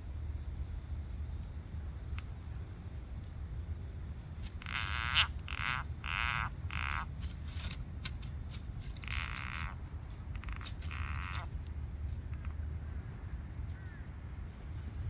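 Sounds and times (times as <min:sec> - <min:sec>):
steady low hum: 0:00.0 - 0:15.0
frog croaking: 0:04.2 - 0:07.5, 0:08.8 - 0:12.6.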